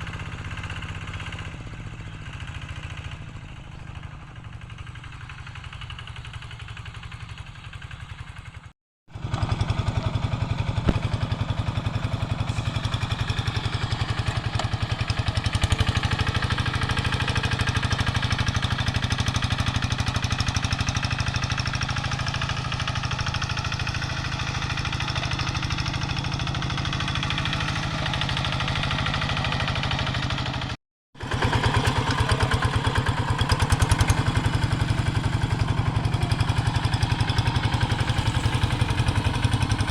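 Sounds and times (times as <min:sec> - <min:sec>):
diesel hand tractor chugging: 0:09.2 - 0:39.9.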